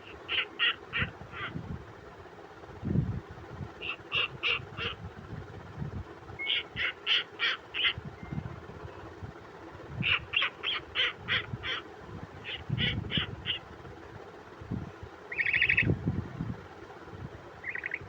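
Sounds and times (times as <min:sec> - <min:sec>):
owl calling with hoarse notes: 0:00.0 - 0:01.6, 0:03.8 - 0:05.1, 0:06.4 - 0:09.1, 0:09.9 - 0:13.8, 0:15.2 - 0:16.0, 0:17.6 - 0:18.0.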